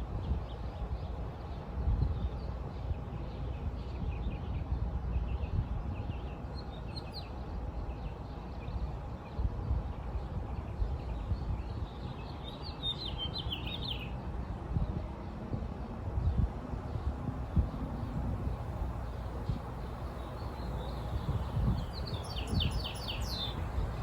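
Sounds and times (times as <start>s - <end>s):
small birds chirping: 10.2s - 14.2s, 19.0s - 24.0s
steady low rumble: 16.0s - 24.0s.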